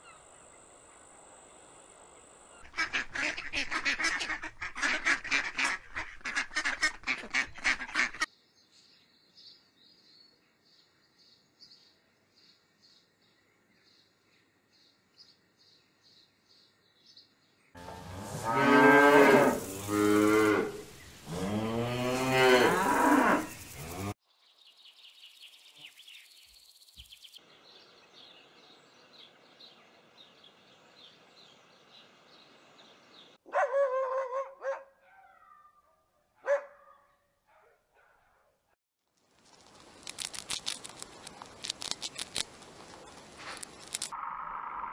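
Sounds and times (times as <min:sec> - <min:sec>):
cow mooing: 0:17.8 - 0:24.1
hiss: 0:18.1 - 0:21.4
insect chirping: 0:18.2 - 0:21.5, 0:22.7 - 0:27.4
bird chirps: 0:23.5 - 0:33.4, 0:44.1 - 0:44.9
dog barking: 0:33.5 - 0:38.6.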